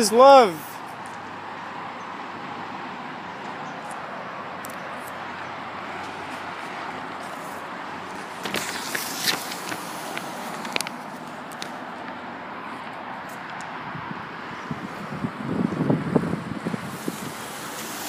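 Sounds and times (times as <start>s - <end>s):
street ambience hiss: 0.0s - 18.0s.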